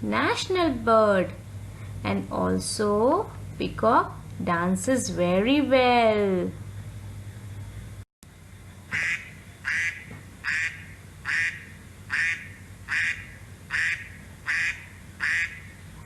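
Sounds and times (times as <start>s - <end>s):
duck quacking: 8.9s - 15.8s.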